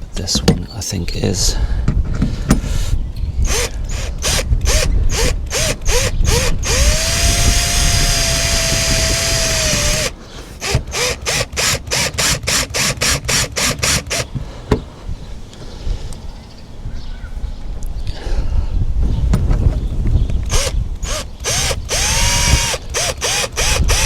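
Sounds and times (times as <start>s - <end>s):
cordless drill driving screw: 2.6s - 14.3s, 20.5s - 24.0s
drill clutch clicking: 3.4s - 14.3s, 20.5s - 24.0s.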